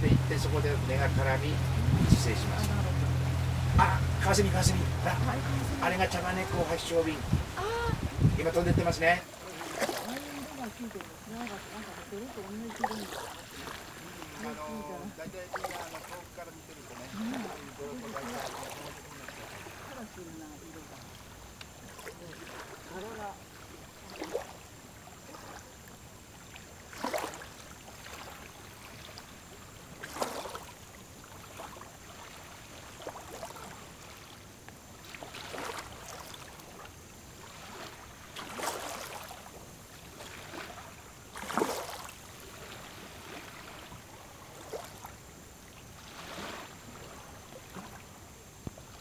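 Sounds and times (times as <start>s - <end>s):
faint steady hiss: 0.0s - 49.0s
water lapping against boat hull: 0.0s - 49.0s.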